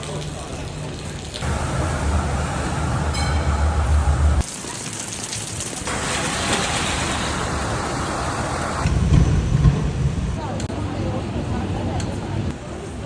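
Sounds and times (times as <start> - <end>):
rain: 0.0 - 12.6
wet road hiss: 1.0 - 9.1
low vehicle rumble: 1.4 - 4.5
rush of water spray: 1.4 - 9.1.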